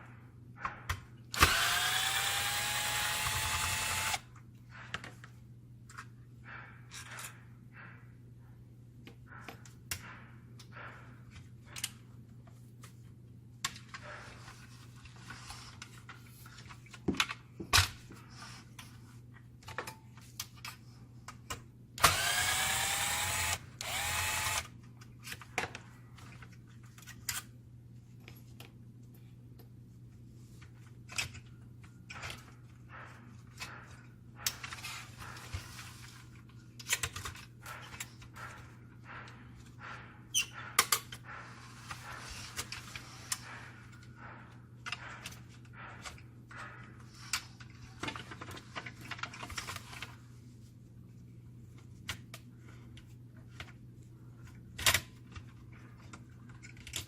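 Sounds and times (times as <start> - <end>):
power driver spinning: 1.4 - 4.2, 22.0 - 24.7
small clicks and knocks of parts: 9.0 - 13.0, 18.8 - 27.5, 30.6 - 35.6, 36.3 - 50.2, 54.4 - 57.0.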